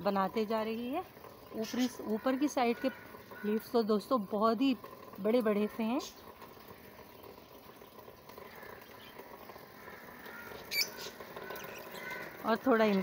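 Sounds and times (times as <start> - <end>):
faint bird calls: 8.4 - 13.0.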